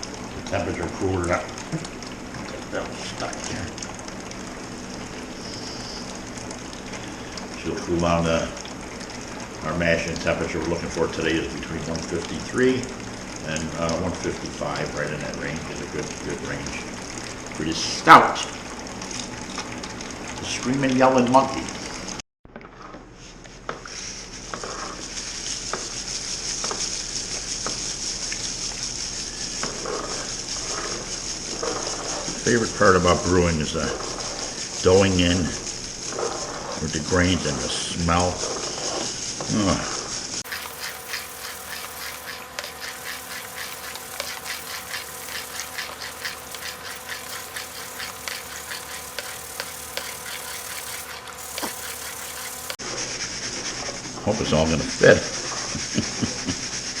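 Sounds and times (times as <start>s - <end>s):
grain being stirred scraping: 23.8s - 57.0s
steady hum: 39.6s - 53.3s
grain pouring into water: 40.4s - 52.8s.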